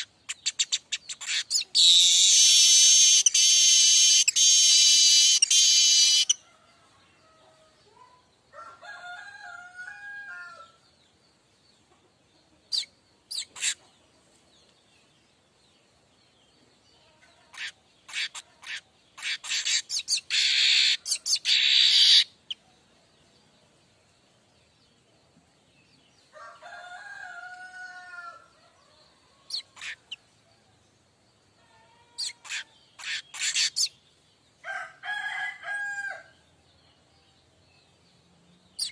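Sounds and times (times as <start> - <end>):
distant rooster crowing: 8.5 - 10.8, 26.3 - 29.6, 34.6 - 36.4.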